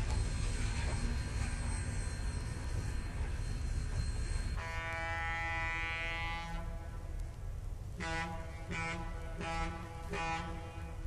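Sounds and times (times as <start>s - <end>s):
train rumbling: 0.0s - 11.0s
locomotive horn blast: 4.6s - 7.1s, 7.9s - 11.0s.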